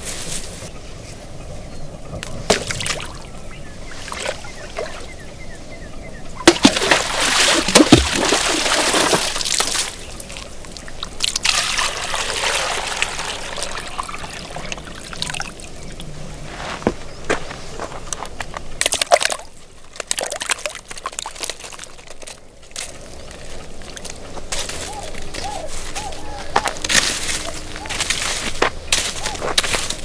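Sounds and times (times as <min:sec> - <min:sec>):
water pouring and sloshing: 0:02.2 - 0:03.3, 0:06.4 - 0:16.2.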